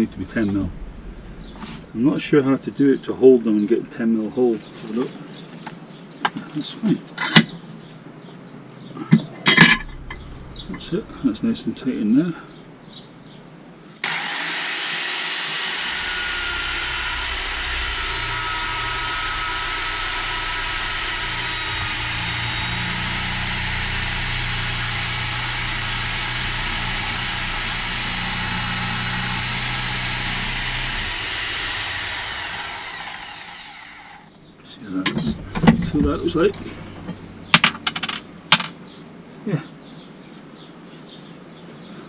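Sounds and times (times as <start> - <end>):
engine running: 0.0 - 3.1, 9.4 - 12.2, 14.0 - 38.7
low hum: 0.0 - 4.2, 9.2 - 13.4, 15.5 - 39.0
constant hiss: 0.0 - 14.0, 15.9 - 42.0.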